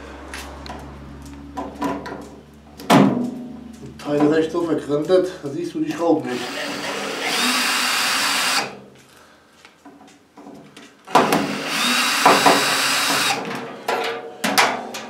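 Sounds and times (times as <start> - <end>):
knocks and clatter: 0.3 - 5.1
power drill whining: 6.2 - 8.8, 11.2 - 13.4.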